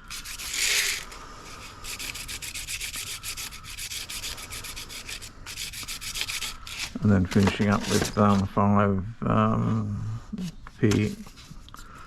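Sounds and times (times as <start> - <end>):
sandpaper rubbing back and forth: 0.0 - 8.1.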